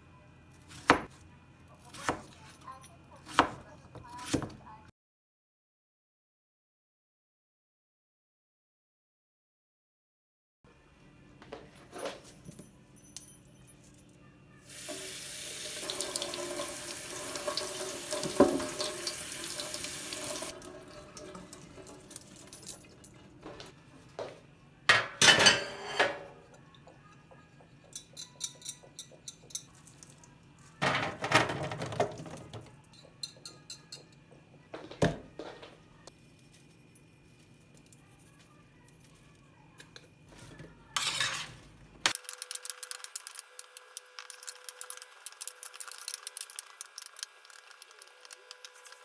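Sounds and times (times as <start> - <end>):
tap running into a sink: 14.9 - 22.0
kitchenware clattering: 15.8 - 23.8, 24.9 - 26.6, 27.6 - 30.1, 30.8 - 35.8, 40.5 - 41.8.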